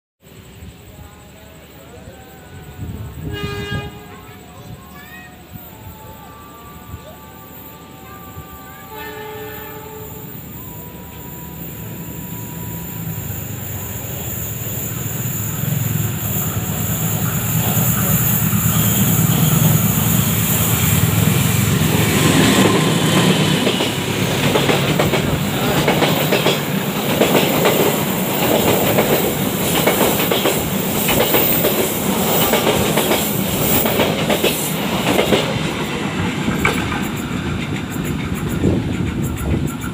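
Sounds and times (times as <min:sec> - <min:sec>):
train horn: 0:01.9 - 0:04.5, 0:05.4 - 0:13.0, 0:15.8 - 0:24.7.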